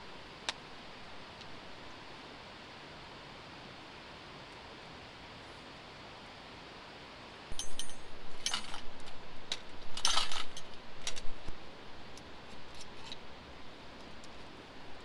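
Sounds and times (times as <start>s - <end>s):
light clinks of small objects: 7.5s - 11.3s
scraping and rustling: 7.7s - 11.4s.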